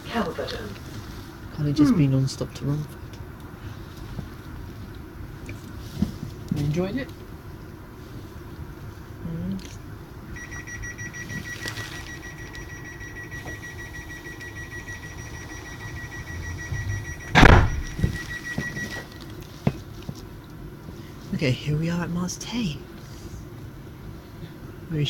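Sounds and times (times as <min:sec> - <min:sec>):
train door warning beeping: 0:10.4 - 0:19.2
carriage rumble: 0:15.5 - 0:18.4
loud thump: 0:16.6 - 0:18.2.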